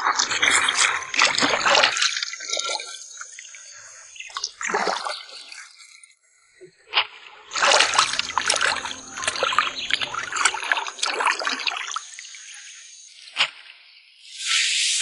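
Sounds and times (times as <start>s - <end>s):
water splashing and trickling: 0.0s - 6.1s, 7.5s - 12.7s.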